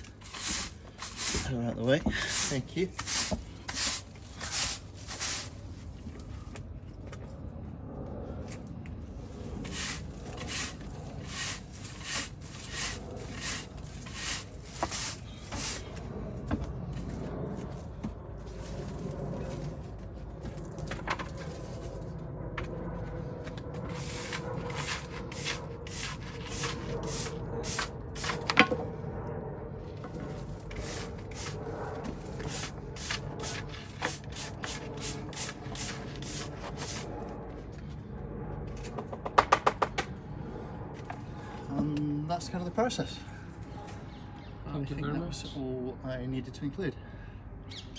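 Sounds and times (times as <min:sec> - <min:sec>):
broom sweeping: 0:00.0 - 0:05.7, 0:09.4 - 0:16.0, 0:23.9 - 0:28.5, 0:30.3 - 0:31.6, 0:32.2 - 0:37.1
low background rumble: 0:00.0 - 0:45.4.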